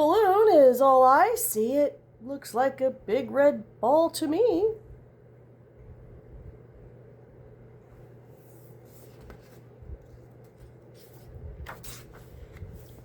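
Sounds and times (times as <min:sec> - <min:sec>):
low steady hum: 0:00.0 - 0:13.0
book pages rustling: 0:08.3 - 0:13.0.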